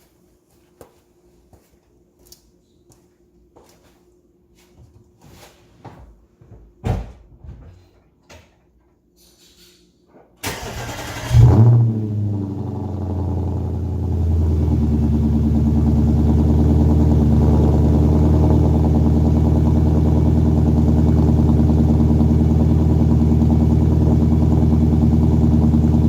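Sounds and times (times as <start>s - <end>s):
car engine revving and idling: 10.8s - 26.0s.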